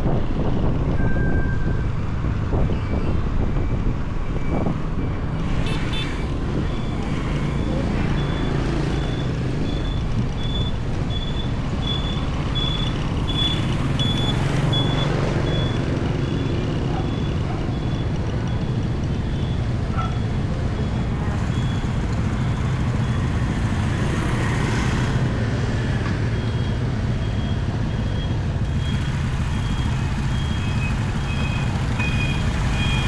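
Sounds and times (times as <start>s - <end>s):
wind and road rumble: 0.0s - 33.0s
high electronic beep: 2.7s - 19.6s, 26.4s - 33.0s
motorbike engine: 4.1s - 19.6s, 20.6s - 25.9s, 28.3s - 33.0s.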